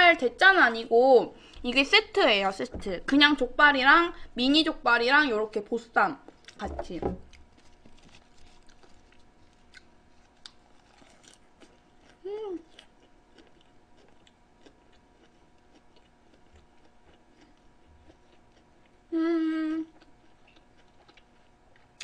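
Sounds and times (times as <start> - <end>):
person chewing wetly: 7.2 - 19.1, 19.9 - 22.0
person humming: 12.2 - 12.7, 19.1 - 20.0.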